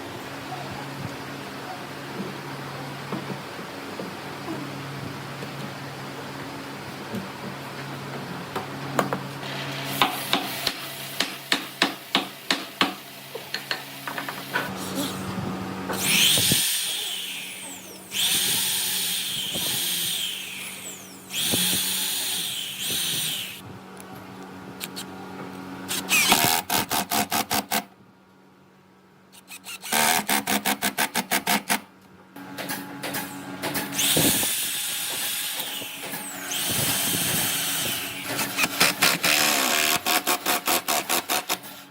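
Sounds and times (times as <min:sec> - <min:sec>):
power tool high-pitched whirring: 0:14.5 - 0:23.6, 0:29.4 - 0:30.2, 0:34.0 - 0:41.4.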